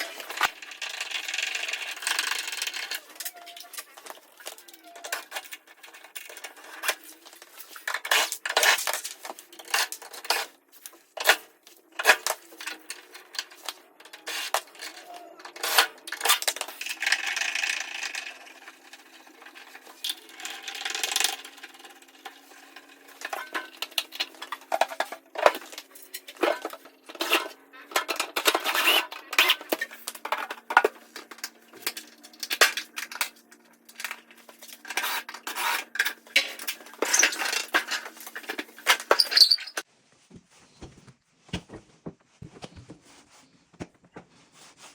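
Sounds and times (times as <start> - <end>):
small hard objects clattering: 0.0 - 39.9.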